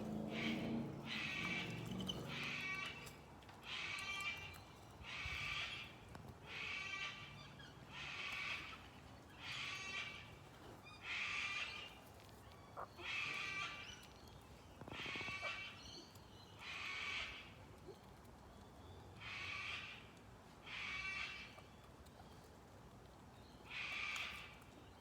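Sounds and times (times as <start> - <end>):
bird raspy calls: 0.0 - 5.9, 12.8 - 14.1, 14.8 - 16.0.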